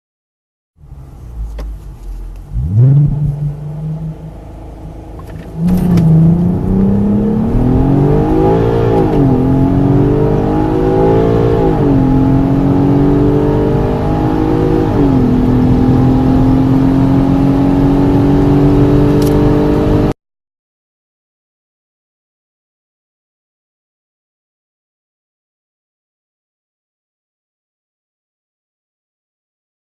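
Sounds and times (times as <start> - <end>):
car engine accelerating: 0.8 - 20.2.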